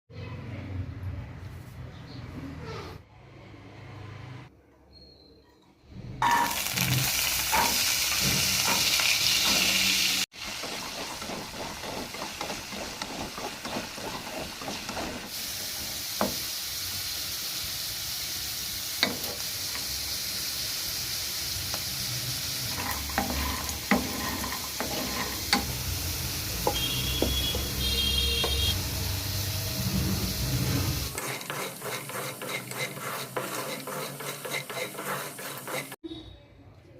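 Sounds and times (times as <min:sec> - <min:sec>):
utensil scraping a pan: 0:06.2 - 0:15.3, 0:22.6 - 0:25.8, 0:30.0 - 0:36.0
food sizzling in hot oil: 0:06.2 - 0:36.0.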